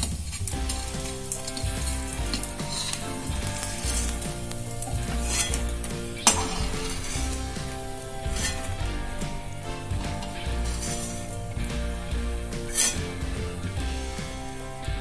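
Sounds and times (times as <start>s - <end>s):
gum sizzling in hot fat: 0.0s - 15.0s
steel spoon scraping a pan: 0.6s - 11.6s, 12.5s - 14.8s
sharp metal clink: 12.7s - 13.2s.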